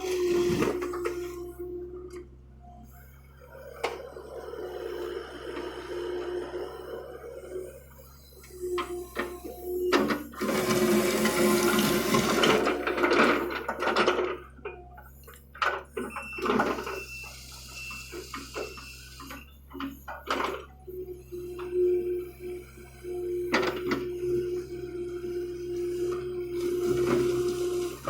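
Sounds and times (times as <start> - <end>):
excavator engine hum: 0.0 - 28.0.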